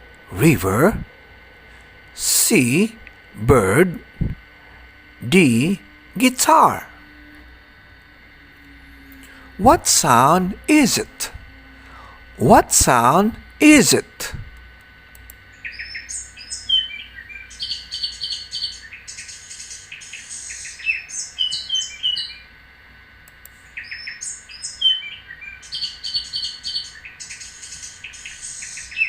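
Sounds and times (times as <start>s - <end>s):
recorded birdsong chirps and trills: 15.4s - 22.6s, 23.5s - 29.0s.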